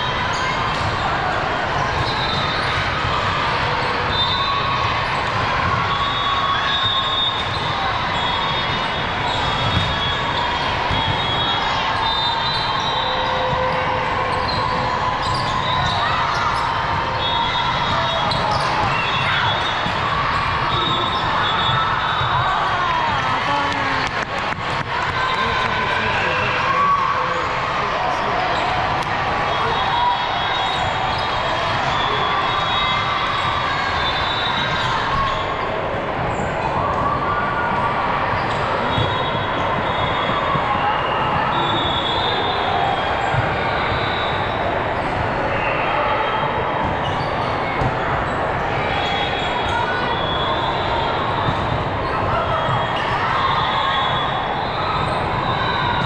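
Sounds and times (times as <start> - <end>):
crowd noise: 0.0 - 56.0
many overlapping voices: 0.0 - 56.0
balls being hit and bounced: 9.0 - 11.6, 13.0 - 25.6, 46.8 - 48.3, 51.4 - 53.2.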